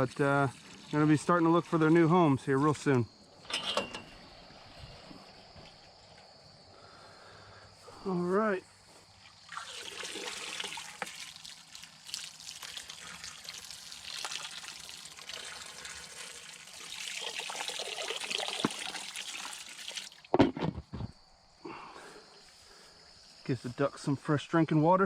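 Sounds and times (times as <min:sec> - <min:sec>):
hose water splashing: 0:00.0 - 0:03.0, 0:09.1 - 0:20.3.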